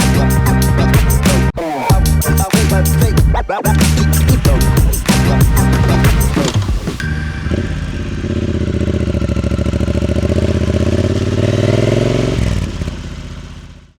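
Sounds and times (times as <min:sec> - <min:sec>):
motorcycle engine under throttle: 0:04.2 - 0:14.0.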